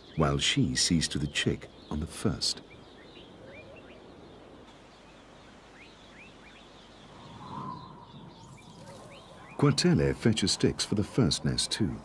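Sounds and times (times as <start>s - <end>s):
soft even hiss: 4.0s - 12.0s
high bird chirps: 5.8s - 9.7s.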